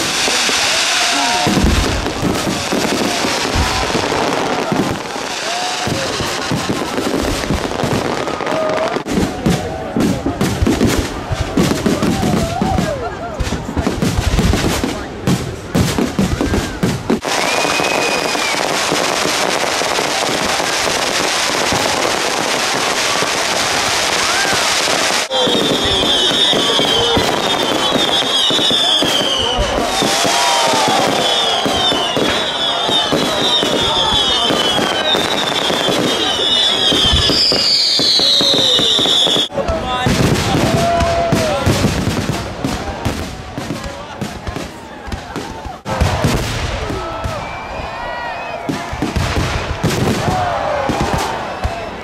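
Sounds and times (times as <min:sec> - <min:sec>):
fireworks crackling: 0:00.0 - 0:52.0
fireworks low bangs: 0:00.0 - 0:52.0
gliding firework whistles: 0:17.2 - 0:18.9, 0:24.2 - 0:39.5.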